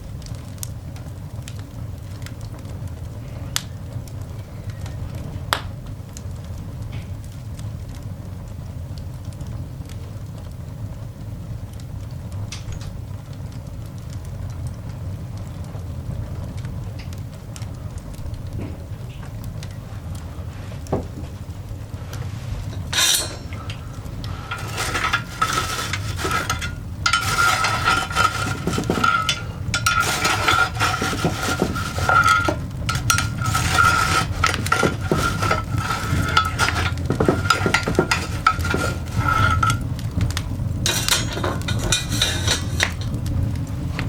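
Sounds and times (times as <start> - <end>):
coal fire crackling and popping: 0.0 - 44.0
low fire rumble: 0.0 - 44.0.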